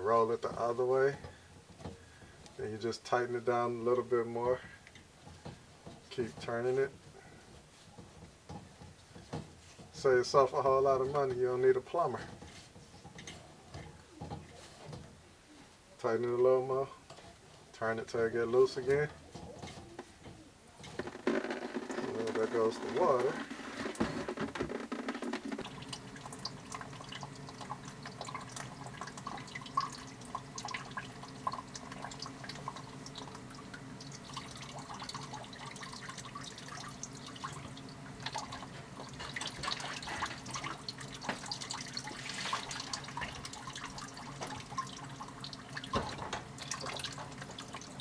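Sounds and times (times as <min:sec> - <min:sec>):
water dripping and trickling: 0:25.6 - 0:48.0.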